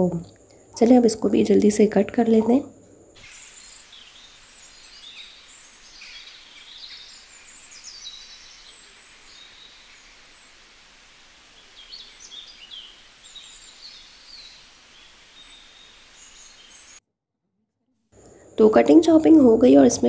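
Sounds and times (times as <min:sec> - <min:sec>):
background hiss: 0:00.0 - 0:17.0, 0:18.2 - 0:20.0
small birds chirping and twittering: 0:03.2 - 0:17.0.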